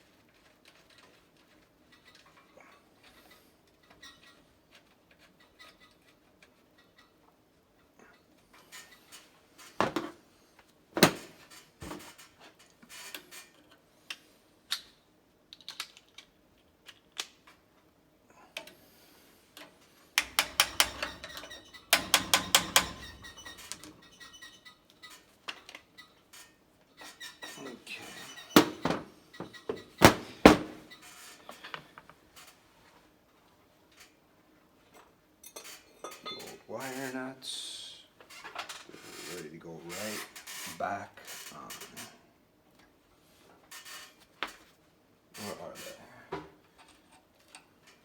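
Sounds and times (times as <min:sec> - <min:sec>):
tools knocking on metal pump: 0:09.8 - 0:10.2, 0:20.2 - 0:23.5.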